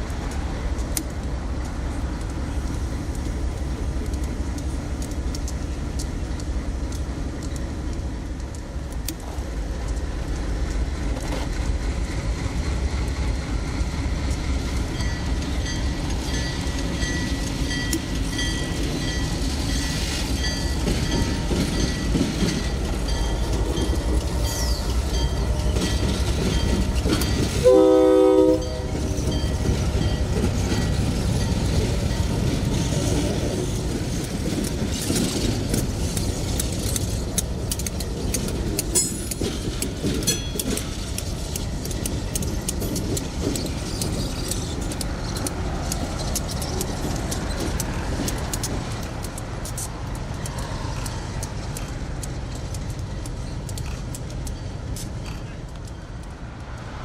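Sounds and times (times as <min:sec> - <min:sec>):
diesel train engine rumble: 0:00.0 - 0:57.0
wheels clicking over rail joints: 0:00.0 - 0:57.0
locomotive horn blast: 0:27.6 - 0:29.0.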